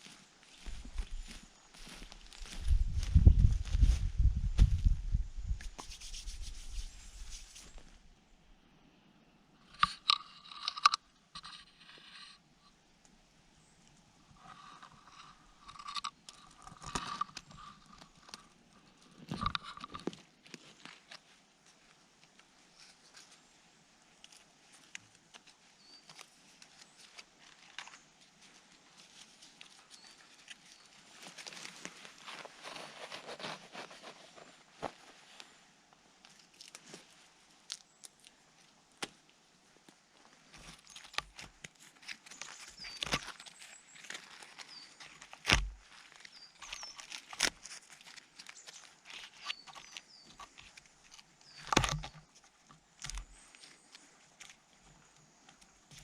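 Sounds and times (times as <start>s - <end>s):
faint clicks and crackles: 9.6s - 12.4s, 13.0s - 23.4s, 36.2s - 56.0s
dry twigs crunching and snapping: 36.2s - 39.3s, 40.4s - 56.0s.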